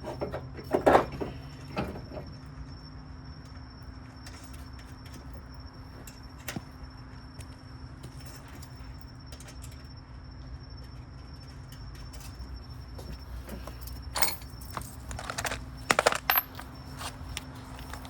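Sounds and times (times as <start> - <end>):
metal tools clanking: 13.0 - 18.0.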